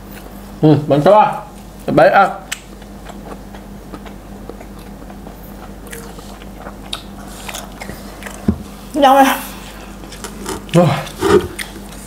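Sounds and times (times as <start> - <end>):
faint electrical hum: 0.0 - 12.0
chewing and biting food: 2.5 - 8.5, 9.9 - 12.0.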